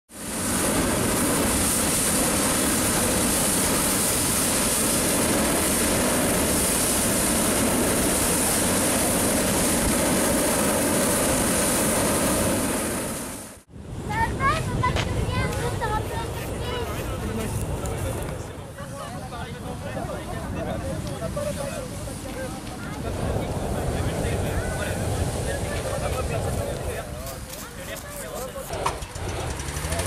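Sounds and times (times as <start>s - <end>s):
propane burner roaring: 0.1s - 14.0s, 19.2s - 27.2s, 28.6s - 30.0s.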